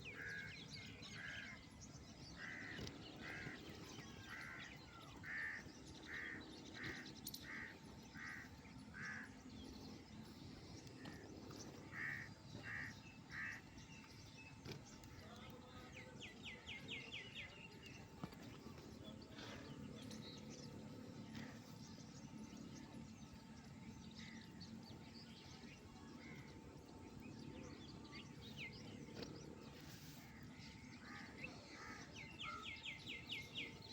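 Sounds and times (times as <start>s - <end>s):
small birds chirping: 0.0s - 33.9s
crows cawing faintly: 2.4s - 9.4s, 11.9s - 13.6s.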